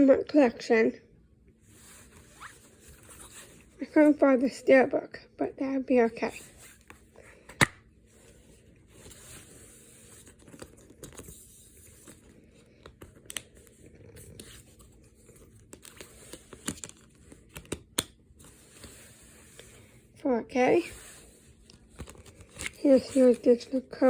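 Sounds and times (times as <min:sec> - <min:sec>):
faint crinkling: 0:08.1 - 0:24.0.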